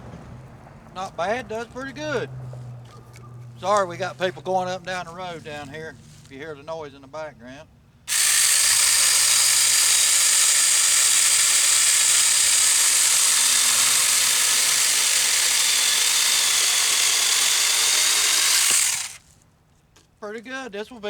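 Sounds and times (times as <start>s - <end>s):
mini chainsaw cutting wood: 8.1s - 19.3s.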